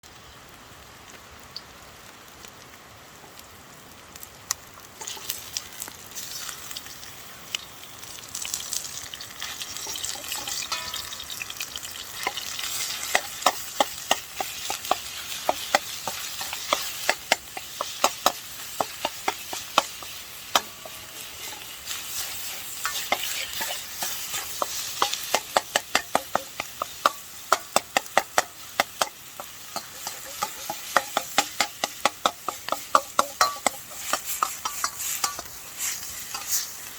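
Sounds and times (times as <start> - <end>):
food sizzling in a wok: 0.0 - 36.9
metal utensil clinking on wok: 9.7 - 36.8.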